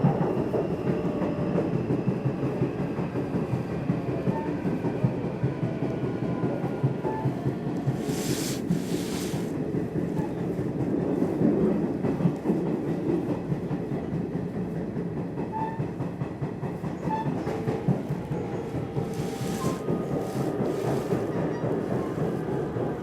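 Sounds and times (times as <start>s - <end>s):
train wheels rumbling on rails: 0.0s - 23.0s
brief hiss: 7.9s - 9.5s, 19.1s - 21.2s.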